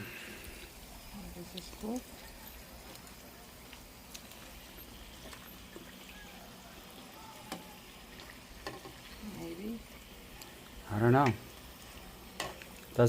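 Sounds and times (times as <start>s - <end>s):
fish sizzling in oil: 0.0s - 13.0s
oil popping: 0.3s - 13.0s.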